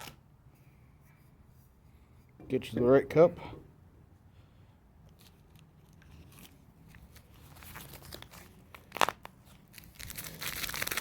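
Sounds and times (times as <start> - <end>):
packet rustling: 5.2 - 11.0.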